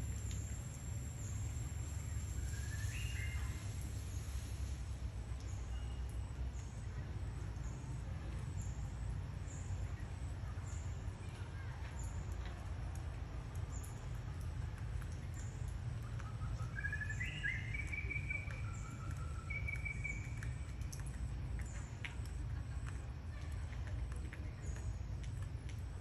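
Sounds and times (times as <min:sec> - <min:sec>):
high whistled chirping calls: 0:02.4 - 0:03.6, 0:16.3 - 0:20.6.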